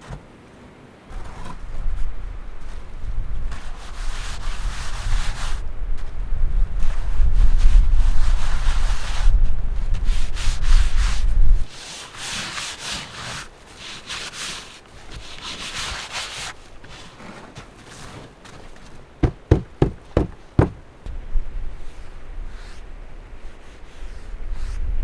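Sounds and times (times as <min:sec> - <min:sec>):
wind buffeting microphone: 0:01.1 - 0:11.7
scraping on wood: 0:14.0 - 0:21.2
quick sharp knocks: 0:19.2 - 0:21.2.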